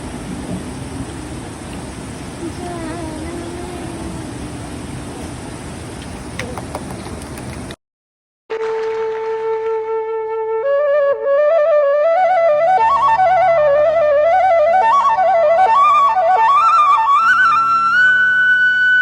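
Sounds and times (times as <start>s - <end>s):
flute melody: 8.6s - 19.0s.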